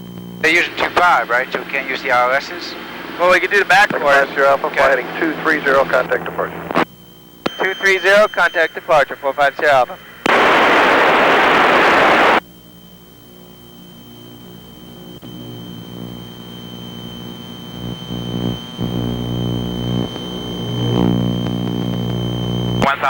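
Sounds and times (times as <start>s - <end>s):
radio static hiss: 0.0s - 23.0s
twin piston engines droning: 0.4s - 6.8s, 7.4s - 12.4s.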